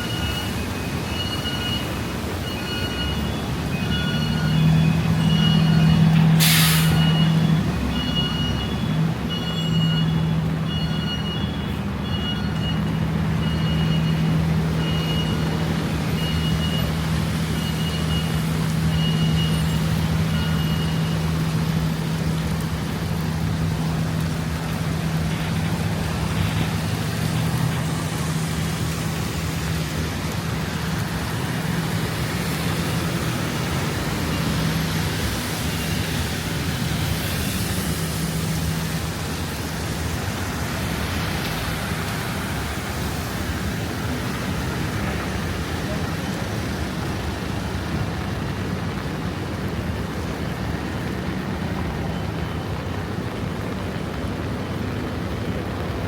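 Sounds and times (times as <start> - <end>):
traffic noise: 0.0 - 56.0
bus engine idling: 1.0 - 37.0
air brake hiss: 6.4 - 7.0.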